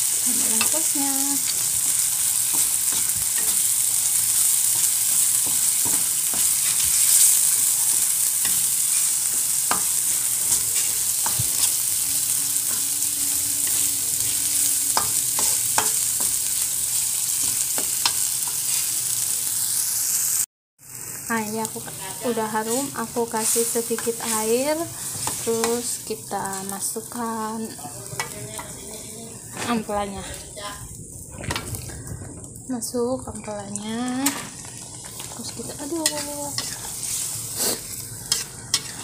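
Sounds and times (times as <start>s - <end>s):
spice paste sizzling in oil: 0.0s - 31.9s, 32.6s - 39.0s
metal spatula scraping a pan: 0.2s - 16.6s, 22.7s - 25.9s, 34.2s - 39.0s.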